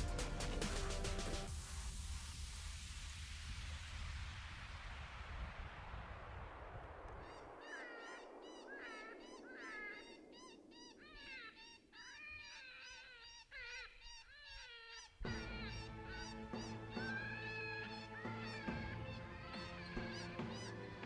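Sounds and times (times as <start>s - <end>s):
music: 0.0s - 2.3s, 15.2s - 21.0s
coyotes yipping and howling: 7.2s - 21.0s.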